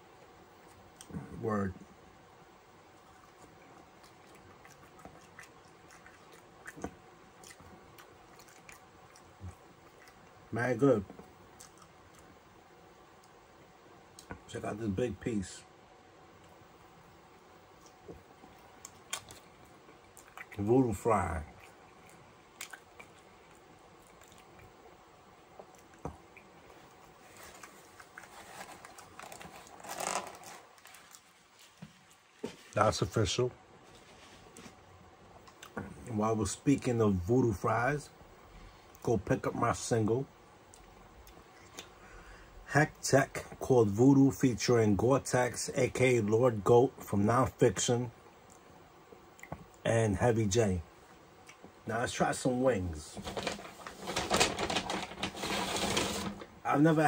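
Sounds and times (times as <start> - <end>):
chewing with mouth clicks: 3.2 - 10.4, 11.2 - 12.3, 17.8 - 20.6, 21.5 - 24.7
wet mouth clicks: 21.6 - 23.3.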